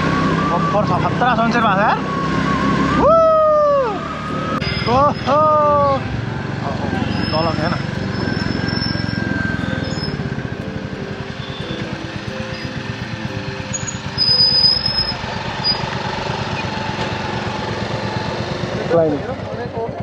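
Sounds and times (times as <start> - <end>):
motorcycle engine running: 4.2 - 20.0.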